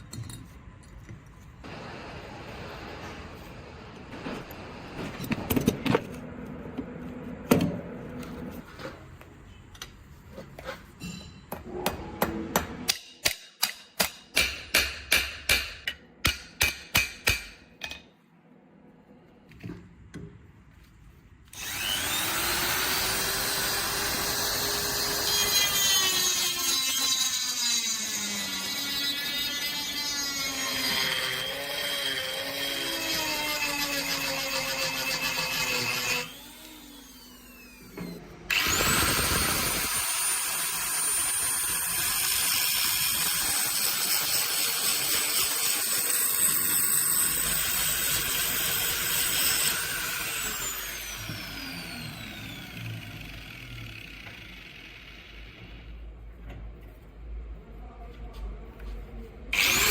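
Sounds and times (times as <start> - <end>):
power tool running: 21.5 - 56.0, 59.5 - 59.9.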